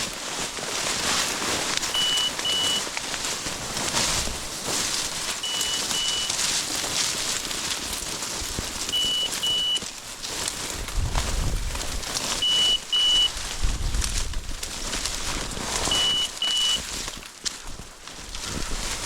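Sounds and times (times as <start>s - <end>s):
footsteps through cattails and snow: 0.0s - 19.0s
electronic double beep: 2.0s - 2.8s, 5.4s - 6.4s, 9.0s - 9.8s, 12.4s - 13.3s, 15.9s - 16.8s.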